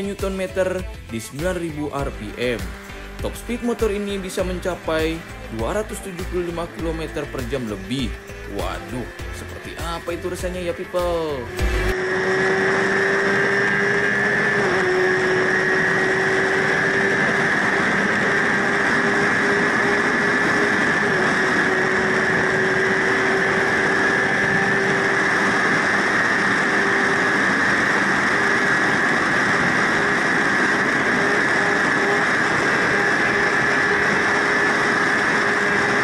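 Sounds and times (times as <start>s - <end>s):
motorcycle engine at high revs: 0.0s - 36.0s
wind rush on microphone: 15.0s - 36.0s.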